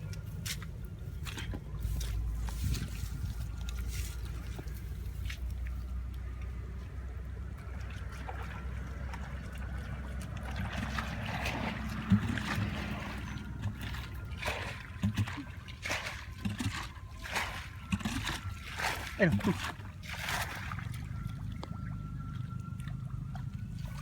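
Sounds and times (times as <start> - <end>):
low rumble: 0.0 - 15.7
shallow water sloshing and splashing: 0.0 - 24.0.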